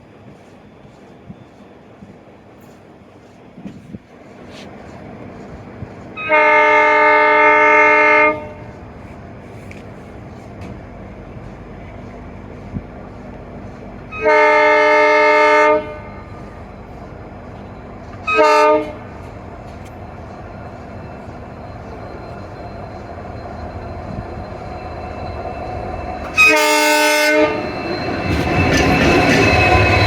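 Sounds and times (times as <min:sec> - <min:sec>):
moving train rumble: 0:00.0 - 0:30.0
locomotive air horn: 0:06.2 - 0:08.6, 0:14.1 - 0:16.3, 0:18.2 - 0:19.1, 0:26.3 - 0:27.6.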